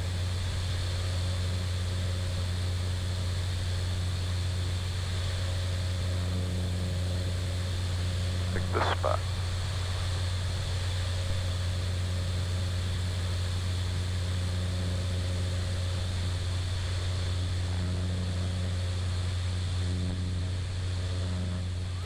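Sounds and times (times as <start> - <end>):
turboprop engine droning: 0.0 - 22.0.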